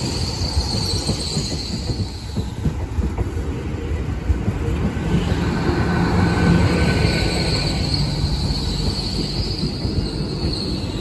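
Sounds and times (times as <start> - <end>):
train wheels clattering over rails: 0.0 - 11.0
high-pitched squeal: 6.2 - 11.0.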